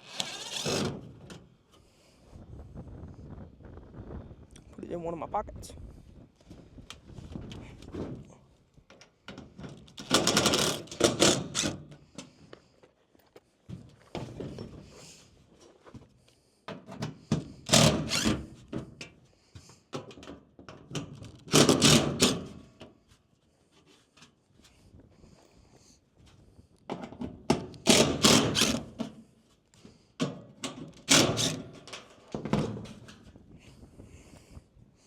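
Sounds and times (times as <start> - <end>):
cordless driver rattling: 0.0 - 0.9, 31.1 - 31.8
metal sheeting knocks and clatter: 30.6 - 33.2.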